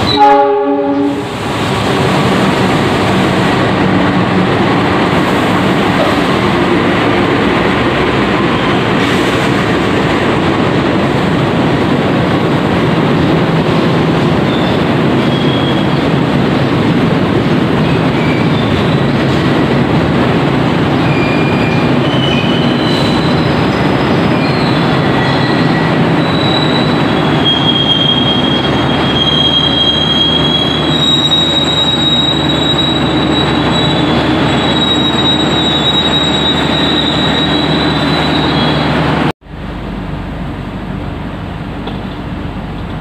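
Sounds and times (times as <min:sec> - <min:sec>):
train low rumble: 0:00.0 - 0:43.0
wheel and brake squeals: 0:14.5 - 0:16.0, 0:21.0 - 0:39.0.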